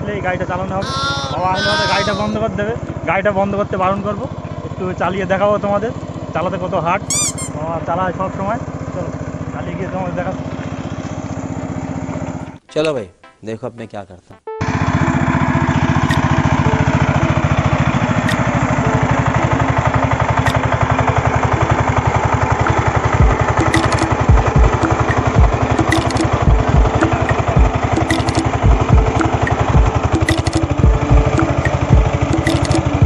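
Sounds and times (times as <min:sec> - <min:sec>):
hand tractor engine running: 0:15.3 - 0:33.0
heavy low thumps: 0:23.2 - 0:23.4, 0:24.2 - 0:25.6, 0:26.4 - 0:27.7, 0:28.6 - 0:30.0, 0:30.8 - 0:32.1
clattering clicks: 0:23.6 - 0:28.6, 0:29.2 - 0:30.8, 0:31.4 - 0:33.0.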